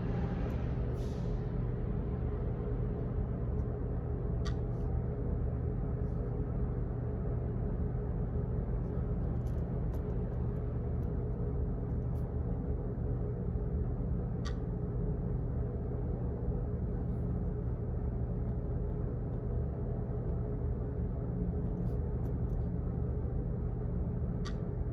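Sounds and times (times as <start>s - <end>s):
low office hum: 0.0s - 24.9s
faint clicks: 4.4s - 4.8s, 14.4s - 14.7s, 24.4s - 24.7s.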